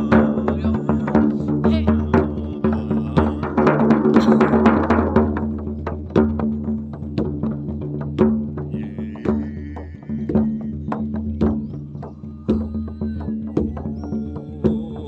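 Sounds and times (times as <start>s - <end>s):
hand drums beating: 0.0s - 15.0s
wavering high tone: 12.1s - 15.0s.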